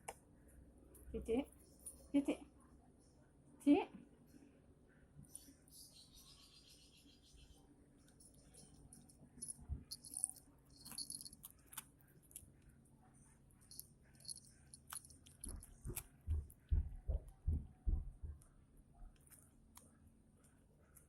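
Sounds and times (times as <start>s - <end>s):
cats eating snack: 8.0s - 17.4s.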